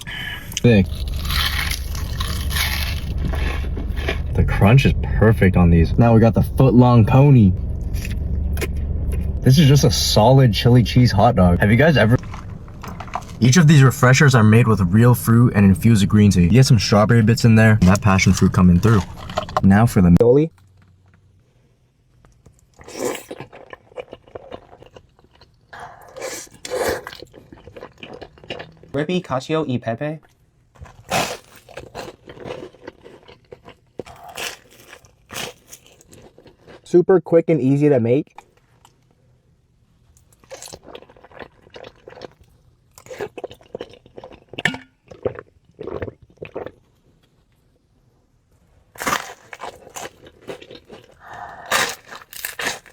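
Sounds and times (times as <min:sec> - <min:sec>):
crunchy bites and chewing: 0:00.3 - 0:04.3, 0:12.2 - 0:13.6, 0:17.8 - 0:19.9, 0:22.3 - 0:28.9, 0:30.7 - 0:36.9, 0:40.2 - 0:47.3, 0:48.9 - 0:52.9.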